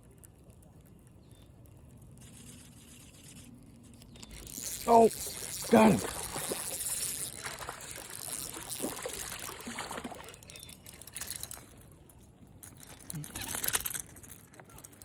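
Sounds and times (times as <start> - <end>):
fish splashing at water surface: 4.6 - 11.6.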